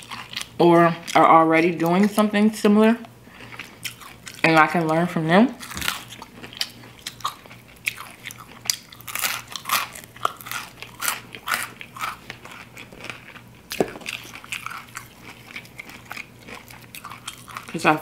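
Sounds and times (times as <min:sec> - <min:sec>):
person crunching fried chicken: 0:00.0 - 0:01.1, 0:03.4 - 0:04.5, 0:05.6 - 0:17.8.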